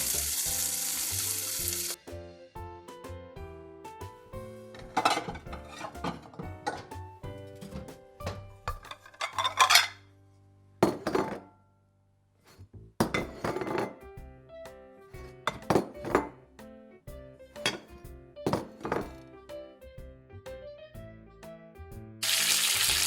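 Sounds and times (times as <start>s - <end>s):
dishes and pots clattering: 4.7s - 10.0s, 10.8s - 11.6s, 13.0s - 14.0s, 15.4s - 16.4s, 17.6s - 19.2s.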